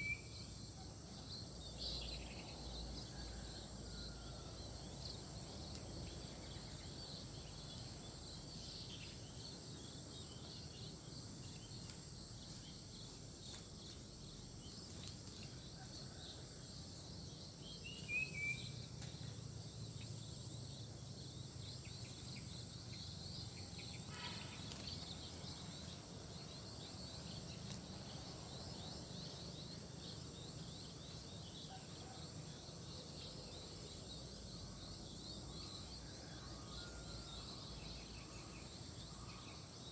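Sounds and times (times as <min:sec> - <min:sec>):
high insect chorus: 0:00.0 - 0:39.9
short bird calls: 0:24.0 - 0:25.2.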